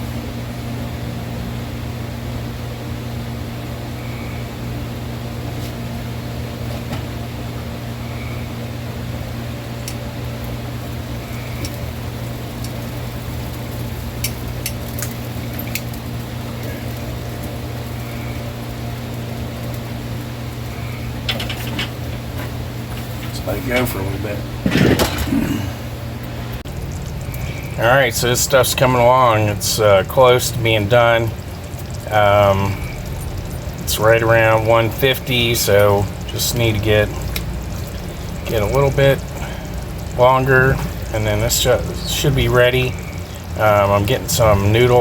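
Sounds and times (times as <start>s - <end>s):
low mechanical hum: 0.0s - 45.0s
light clicks and ticks: 14.2s - 16.0s.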